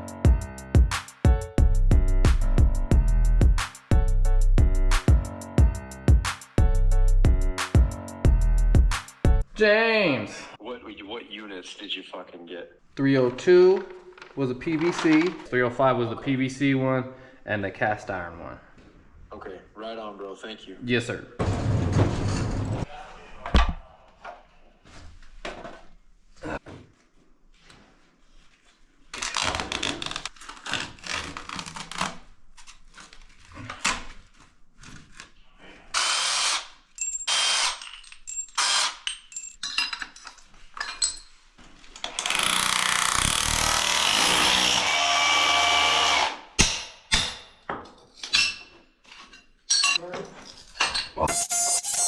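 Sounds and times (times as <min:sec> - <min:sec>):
knocks and clatter of work: 0:21.4 - 0:22.9
power tool running: 0:42.2 - 0:46.4, 0:51.3 - 0:52.0.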